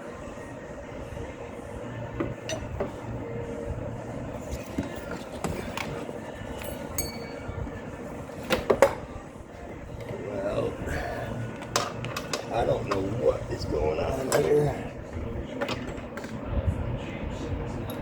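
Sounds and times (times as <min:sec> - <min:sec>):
steady low hum: 0:00.0 - 0:18.0
metallic clinks of hand tools: 0:06.6 - 0:07.4.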